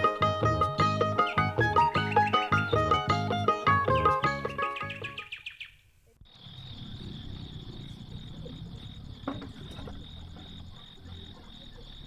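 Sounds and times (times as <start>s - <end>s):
plucked string music: 0.0s - 5.2s.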